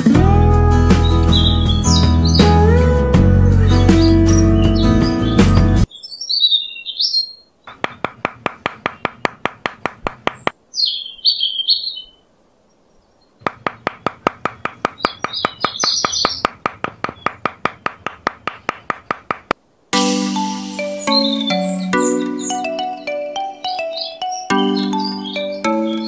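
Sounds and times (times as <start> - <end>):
birds chirping: 0.0 - 26.0
fast even ticking clicks: 7.7 - 10.6, 13.4 - 19.6.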